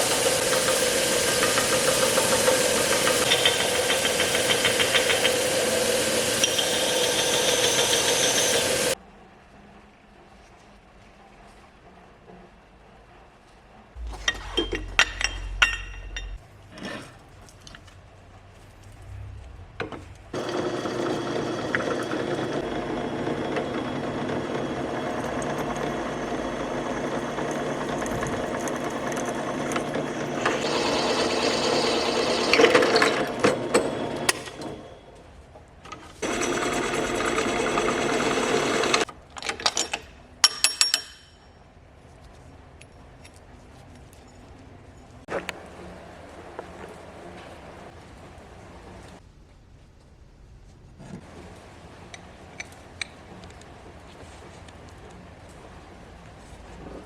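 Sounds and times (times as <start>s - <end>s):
power tool motor running: 0.0s - 9.0s, 20.4s - 34.9s, 36.2s - 39.1s.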